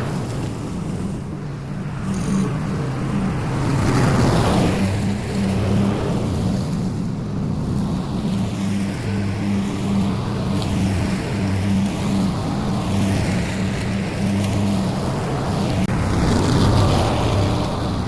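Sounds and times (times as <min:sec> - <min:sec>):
small petrol engine running: 0:01.8 - 0:06.5, 0:08.0 - 0:18.0.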